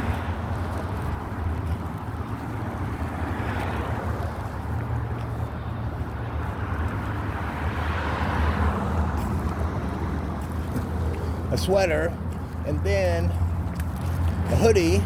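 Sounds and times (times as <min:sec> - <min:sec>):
wind rumbling on microphone: 0:00.0 - 0:11.6.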